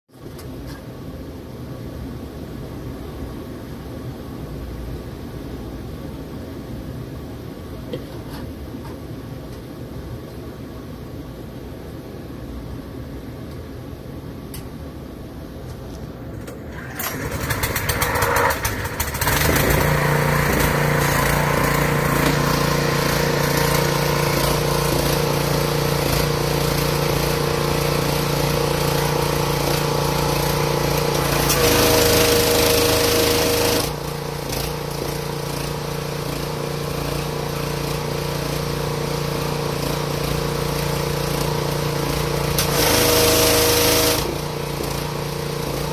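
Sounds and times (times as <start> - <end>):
pressure washer engine running: 16.4 - 45.9.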